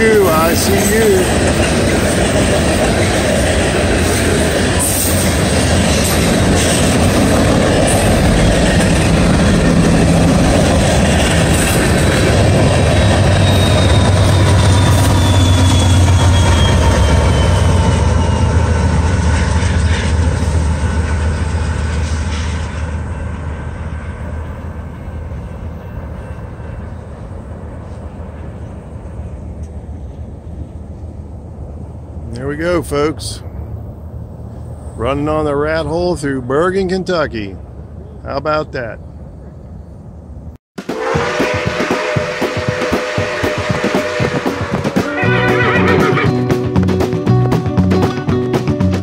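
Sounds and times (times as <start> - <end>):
high wheel squeal: 0.0 - 1.6, 12.6 - 19.2, 41.1 - 46.4
train wheels clattering on rails: 0.0 - 22.9, 40.8 - 49.0
locomotive engine drone: 0.0 - 49.0.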